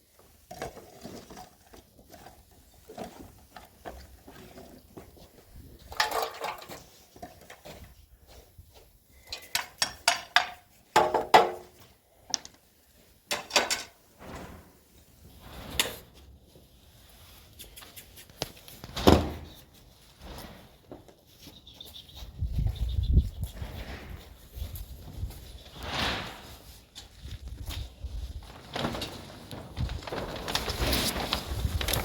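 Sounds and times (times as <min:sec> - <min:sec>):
hard objects knocking and clattering: 0:05.8 - 0:07.7, 0:09.3 - 0:12.5, 0:13.3 - 0:14.0.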